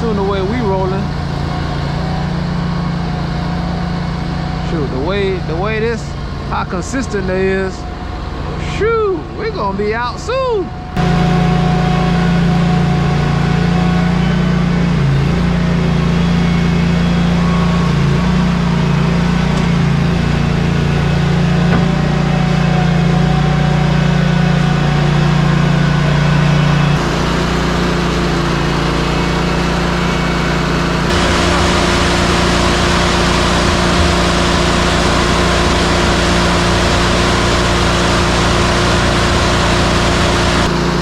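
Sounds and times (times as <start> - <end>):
diesel engine running: 10.8 - 41.0.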